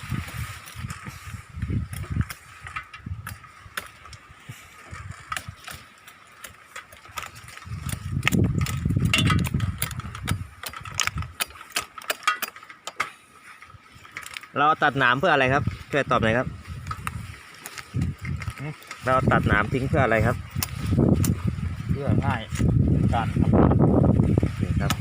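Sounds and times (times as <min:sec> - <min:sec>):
wind buffeting microphone: 0:00.0 - 0:05.8, 0:07.1 - 0:11.5, 0:14.8 - 0:25.0
sharp clicks and rattles: 0:04.8 - 0:15.8, 0:16.7 - 0:21.5.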